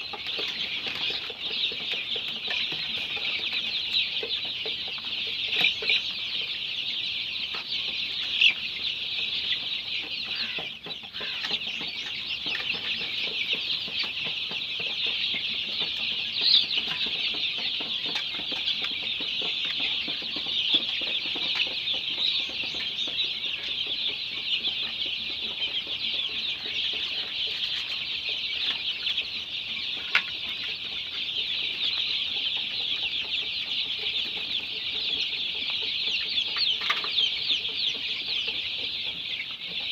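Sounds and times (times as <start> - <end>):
chicks peeping: 0.0 - 39.9
loud single chick calls: 7.5 - 14.2.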